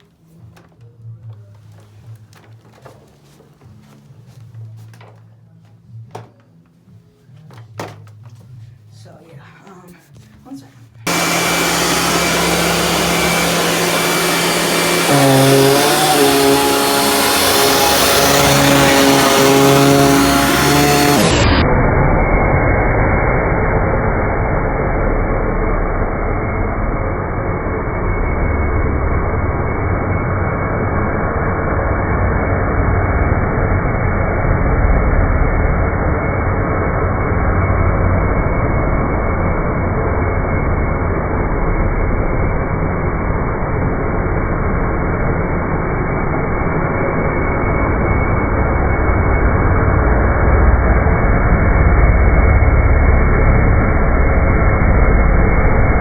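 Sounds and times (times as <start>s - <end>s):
vacuum cleaner running on carpet: 11.1s - 21.7s.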